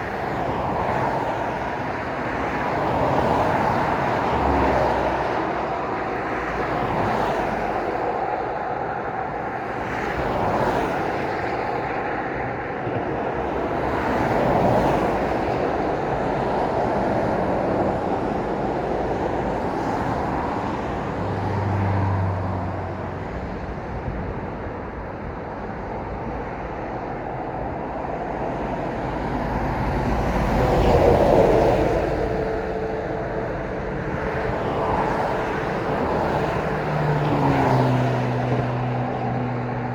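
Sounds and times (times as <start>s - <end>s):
road traffic passing: 0.0s - 39.9s.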